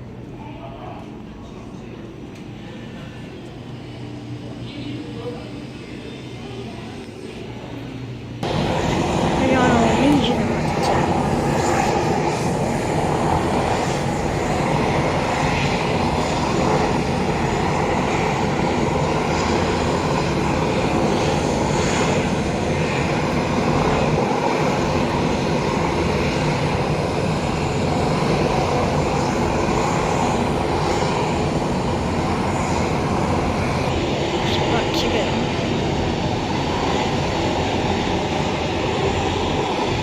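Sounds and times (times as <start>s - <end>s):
aircraft engines droning: 0.0s - 40.0s.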